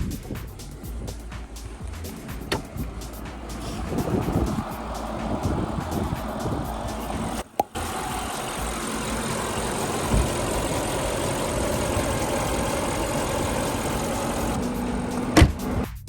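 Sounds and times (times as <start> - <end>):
dull thump: 0.0 - 7.8, 9.2 - 10.6, 15.2 - 15.9
car engine idling: 0.0 - 16.0.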